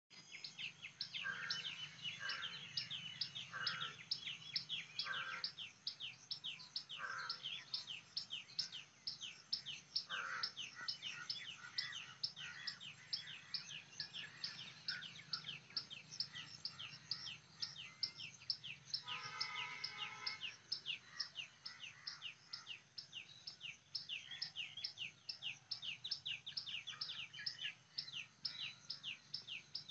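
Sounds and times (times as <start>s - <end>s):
harsh bird call: 19.0s - 20.6s.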